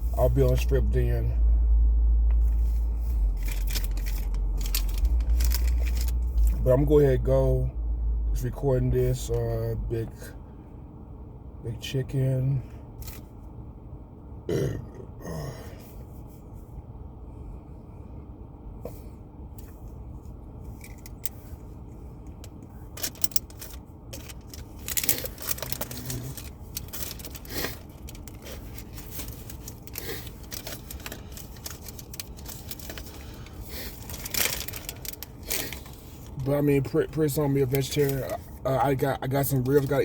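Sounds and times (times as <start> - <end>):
low steady rumble: 0.0 - 40.0
man burping: 14.5 - 15.8
rustling and clicking: 22.2 - 36.4.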